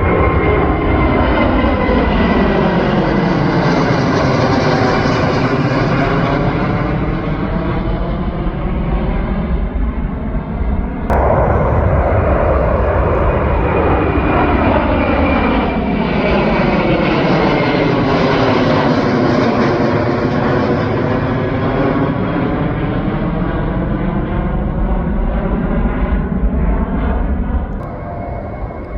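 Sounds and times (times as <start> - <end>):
airliner engine roar passing: 0.0 - 28.9.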